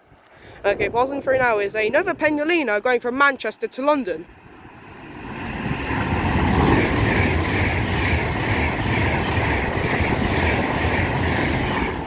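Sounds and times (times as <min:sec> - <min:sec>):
electric train braking past: 0:04.4 - 0:12.0.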